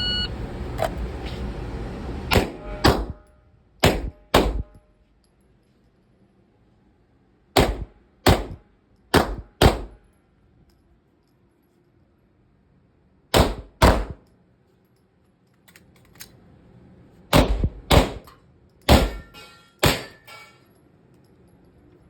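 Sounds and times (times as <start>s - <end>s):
pistol shots: 2.3s - 3.2s, 3.8s - 4.8s, 7.6s - 10.0s, 13.3s - 14.2s, 17.3s - 18.3s, 18.9s - 20.2s.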